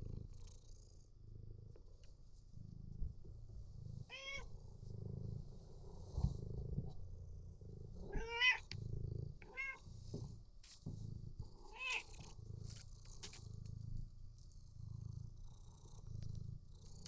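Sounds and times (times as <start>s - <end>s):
cat purring: 0.0s - 17.0s
cat meowing: 4.1s - 4.5s, 8.1s - 8.7s, 9.5s - 9.8s, 11.7s - 12.2s.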